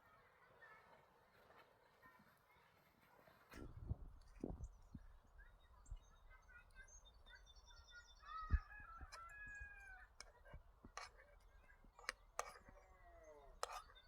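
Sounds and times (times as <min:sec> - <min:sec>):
faint bird calls: 0:04.5 - 0:14.0.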